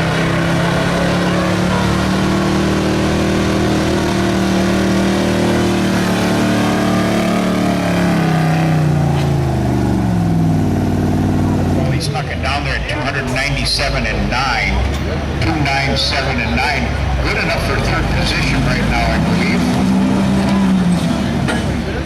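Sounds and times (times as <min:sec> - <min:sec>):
truck engine revving under load: 0:00.0 - 0:22.0.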